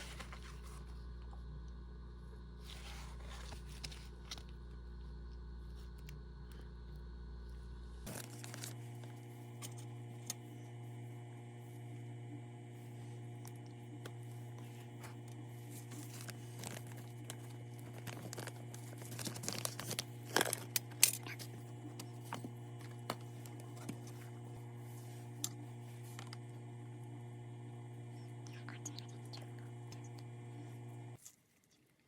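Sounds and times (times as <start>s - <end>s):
steady low hum: 0.0s - 31.2s
packaging crinkling and tearing: 8.1s - 9.8s, 15.0s - 24.3s.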